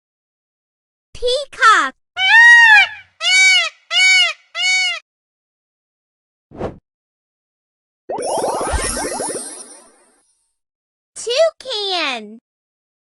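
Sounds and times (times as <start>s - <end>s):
peacock calling: 2.2s - 5.0s.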